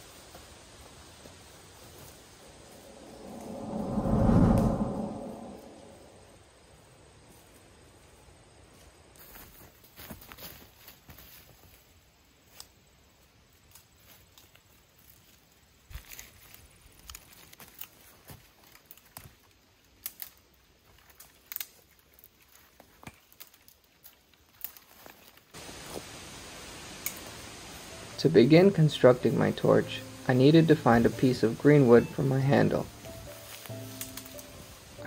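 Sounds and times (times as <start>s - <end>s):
rustling of brush and leaves: 0.0s - 35.0s
twigs snapping: 15.9s - 25.5s.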